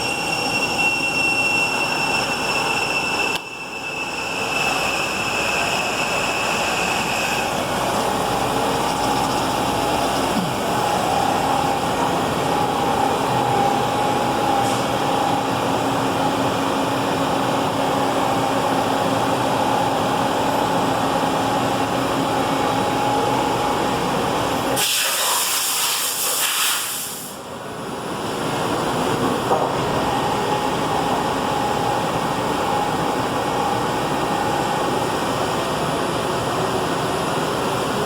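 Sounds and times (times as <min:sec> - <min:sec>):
lathe humming with whine: 0:00.0 - 0:24.8
loud hiss: 0:24.8 - 0:27.5.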